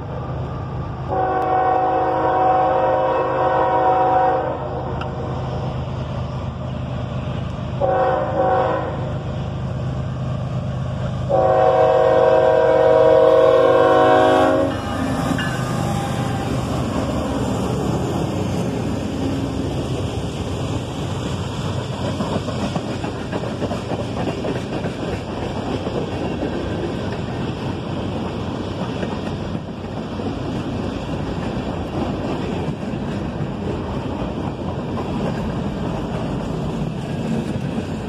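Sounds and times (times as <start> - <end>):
freight train rumbling on rails: 0.0 - 38.0.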